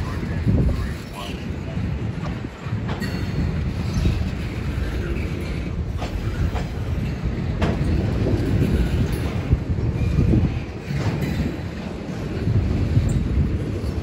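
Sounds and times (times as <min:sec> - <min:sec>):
steel wheels rumbling on rail: 0:00.0 - 0:14.0
wheels clicking on rail joints: 0:00.0 - 0:14.0.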